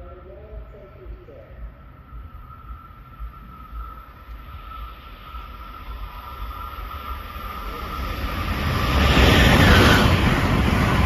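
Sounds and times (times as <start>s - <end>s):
high-speed train passing: 0.0s - 11.0s.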